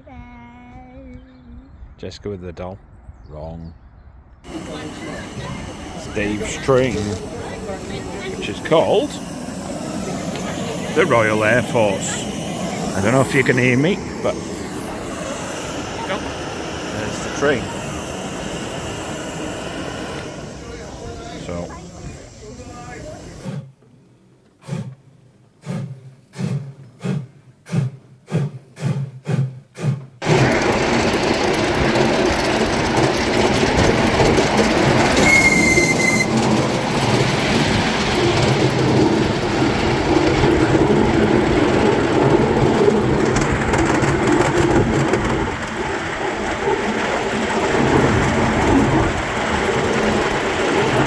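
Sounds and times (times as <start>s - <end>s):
moving train rumble: 4.4s - 23.8s, 30.2s - 51.0s
miniature locomotive chuffing: 4.5s - 23.8s, 25.6s - 51.0s
short high-pitched whistle: 35.2s - 36.4s.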